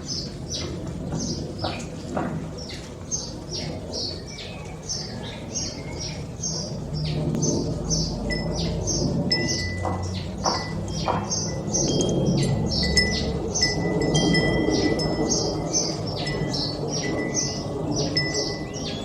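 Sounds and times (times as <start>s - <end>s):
songbirds chirping: 0.0s - 19.0s
low background rumble: 5.2s - 19.0s.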